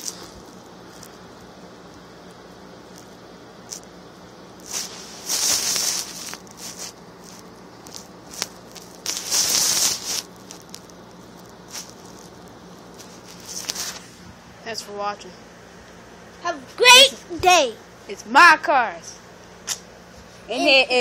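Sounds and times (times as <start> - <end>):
rustling and scraping handling noise: 4.6 - 14.4.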